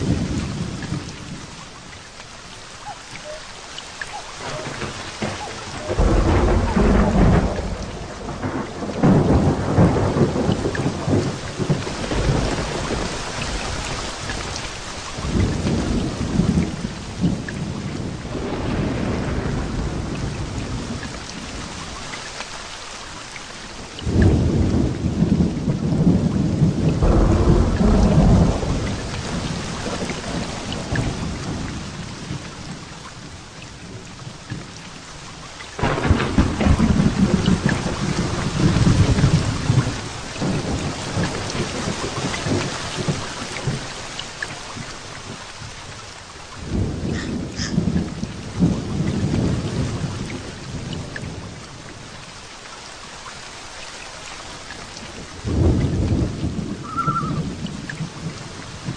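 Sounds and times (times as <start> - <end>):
heavy rain falling: 0.0 - 58.9
thunder claps: 4.1 - 21.8, 24.0 - 34.7, 35.8 - 44.1, 46.6 - 52.0, 55.1 - 58.9.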